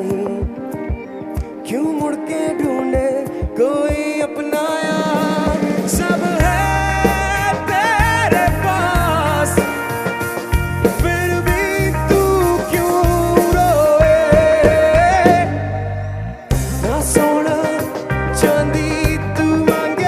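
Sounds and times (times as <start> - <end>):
drums: 0.0 - 20.0
person singing: 0.0 - 20.0
bass guitar: 4.9 - 20.0.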